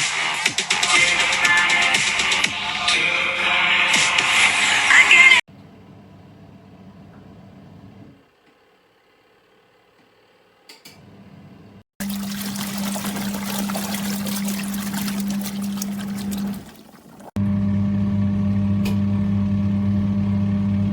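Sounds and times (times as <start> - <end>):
washing machine motor hum: 11.0 - 20.9
water churning: 12.0 - 17.5.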